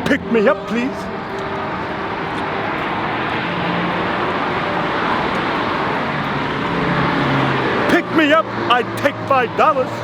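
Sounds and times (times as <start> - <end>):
passing road traffic: 0.0 - 10.0.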